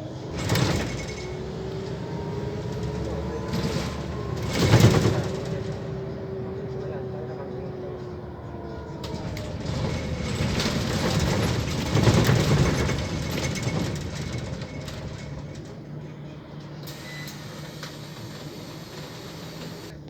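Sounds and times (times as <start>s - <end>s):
bus engine and road noise: 0.0s - 20.0s.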